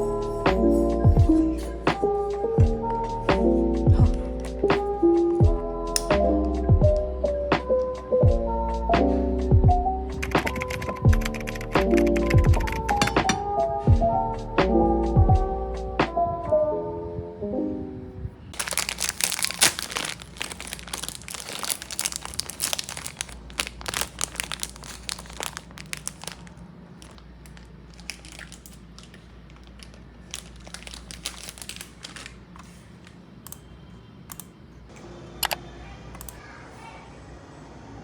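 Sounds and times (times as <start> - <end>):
sharp crackles: 18.6 - 32.4
packaging crinkling and rustling: 18.6 - 33.2.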